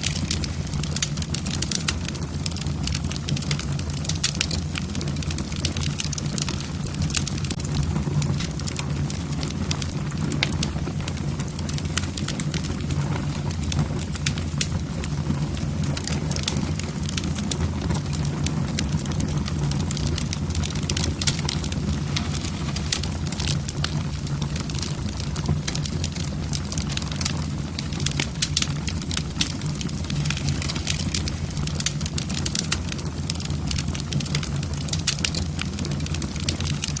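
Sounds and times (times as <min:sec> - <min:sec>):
logs crackling in fireplace: 0:00.0 - 0:37.0
low rumble: 0:04.6 - 0:33.7.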